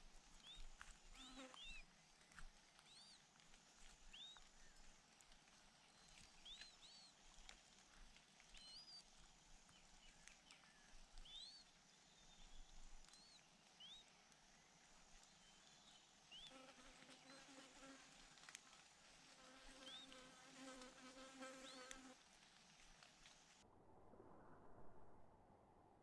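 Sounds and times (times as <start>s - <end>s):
faint bird chirps: 4.1s - 4.9s, 5.9s - 7.3s, 8.5s - 9.1s, 9.7s - 16.6s, 19.8s - 20.3s.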